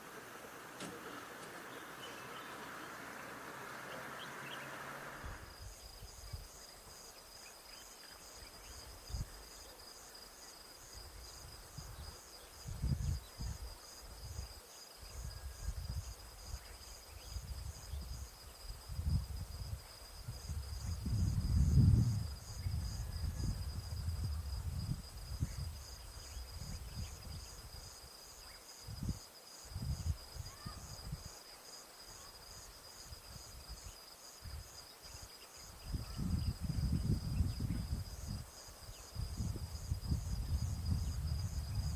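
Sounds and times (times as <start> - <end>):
low rumble on microphone: 18.9 - 27.6, 35.9 - 38.4, 39.1 - 41.9.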